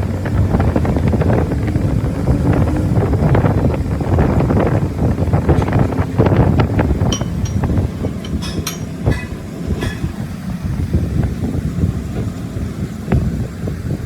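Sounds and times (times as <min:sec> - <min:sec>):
low machine rumble: 0:00.0 - 0:14.0
metal clinks and knocks: 0:05.5 - 0:10.4.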